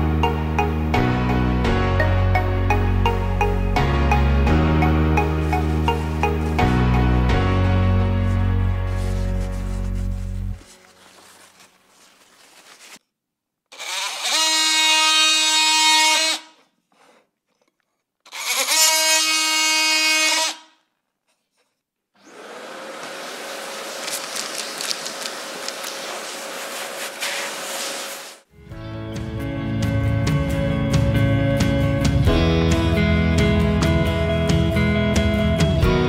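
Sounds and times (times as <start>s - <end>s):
oscillating multi-tool buzzing: 13.7s - 16.6s, 18.3s - 20.7s
hissy power tool running: 22.2s - 24.4s, 25.1s - 28.4s.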